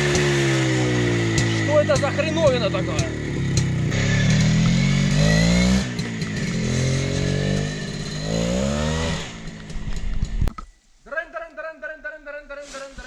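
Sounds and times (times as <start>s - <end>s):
motorcycle engine revving: 0.0s - 10.5s.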